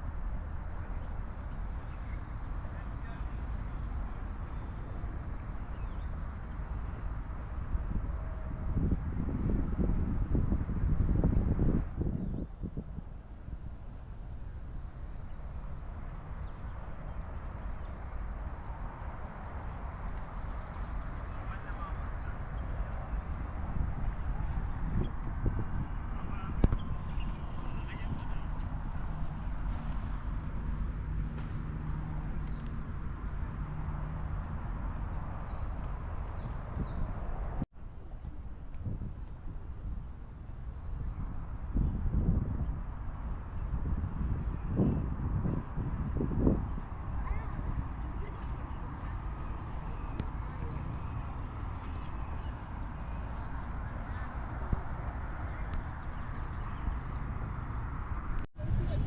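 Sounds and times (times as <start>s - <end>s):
steady low rumble: 6.6s - 39.0s.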